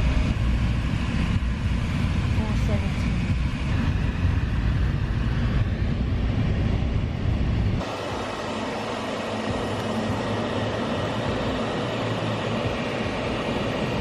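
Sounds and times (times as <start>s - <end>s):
vehicle rumble: 0.0s - 14.0s.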